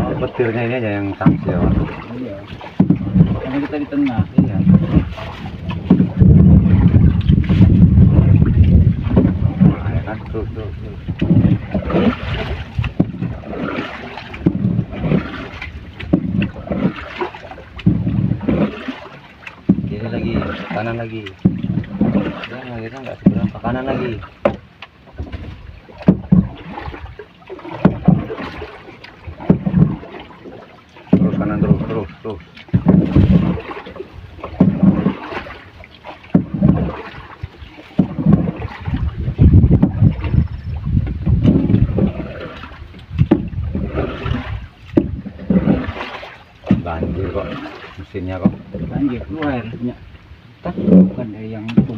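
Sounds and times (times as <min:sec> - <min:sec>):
paddle splashes: 0:00.0 - 0:51.9
wind buffeting microphone: 0:00.0 - 0:51.9
sharp knocks: 0:02.7 - 0:07.8, 0:14.3 - 0:15.2, 0:16.0 - 0:16.9, 0:17.7 - 0:18.7, 0:19.6 - 0:23.8, 0:24.4 - 0:26.6, 0:27.7 - 0:28.6, 0:32.7 - 0:33.6, 0:43.2 - 0:43.6, 0:51.6 - 0:51.9.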